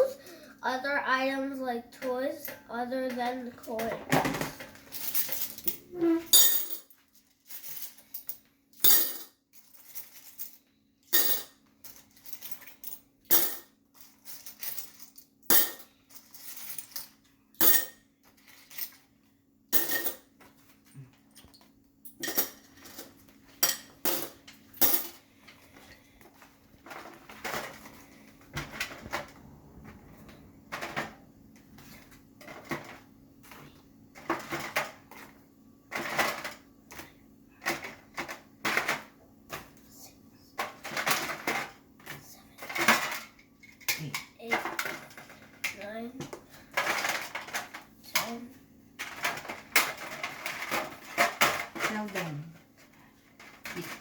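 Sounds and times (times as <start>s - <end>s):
coins clinking: 4.9s - 17.9s, 19.8s - 20.2s, 22.1s - 25.2s.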